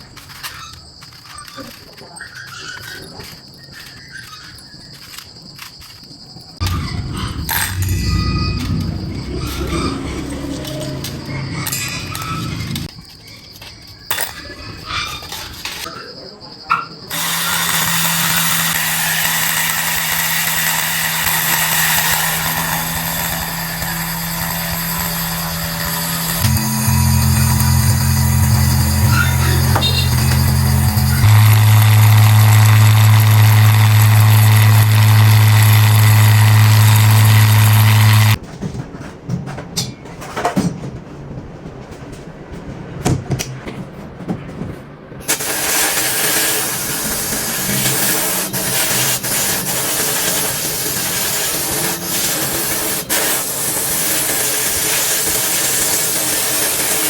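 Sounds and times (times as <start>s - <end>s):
workshop parts clicking and knocking: 0.0s - 57.0s
power tool running: 6.6s - 12.9s, 17.1s - 38.4s, 45.2s - 57.0s.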